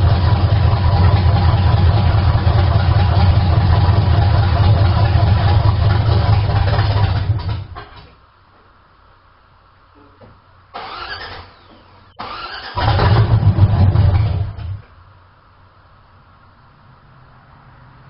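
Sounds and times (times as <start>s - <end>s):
pickup engine idling: 0.0s - 7.8s.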